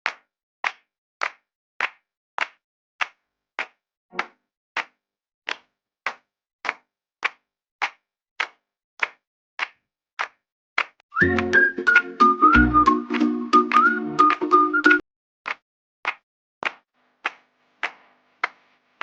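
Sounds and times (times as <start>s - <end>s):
sharp clap-like hits: 0.0s - 18.7s
music: 11.2s - 15.0s.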